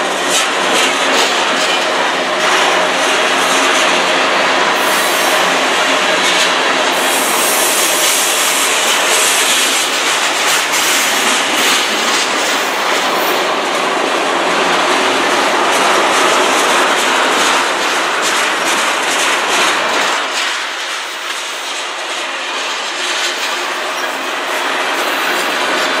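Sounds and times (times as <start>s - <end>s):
steel wheels rumbling on rails: 0.0s - 26.0s.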